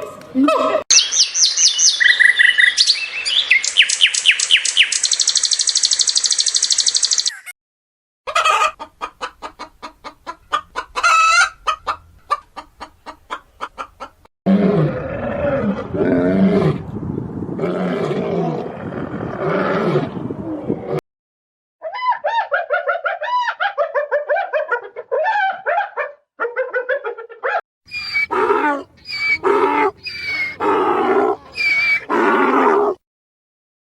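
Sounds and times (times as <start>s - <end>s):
chickens chirping: 8.3s - 14.1s, 27.9s - 32.9s
chickens calling: 8.3s - 14.2s, 27.9s - 33.0s
chickens clucking: 8.3s - 14.2s, 27.9s - 32.2s.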